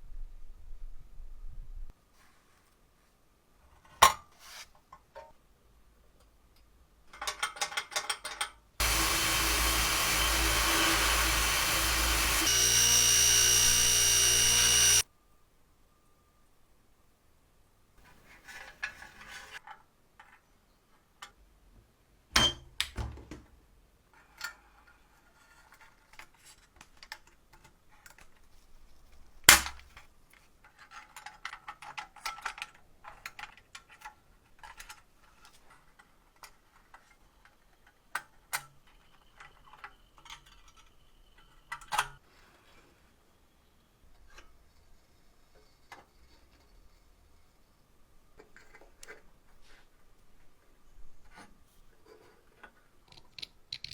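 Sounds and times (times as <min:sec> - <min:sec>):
small hard parts clicking and rattling: 0:53.0 - 0:53.9.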